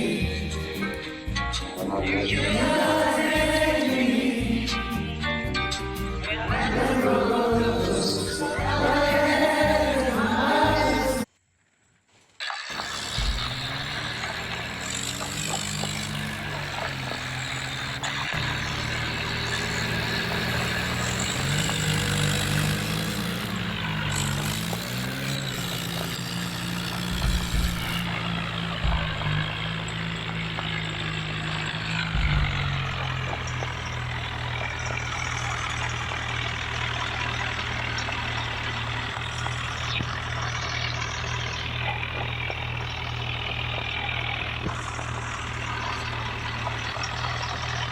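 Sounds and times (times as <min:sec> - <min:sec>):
tractor diesel engine running: 0:00.0 - 0:11.3, 0:12.7 - 0:47.9
low thumps: 0:13.0 - 0:35.0.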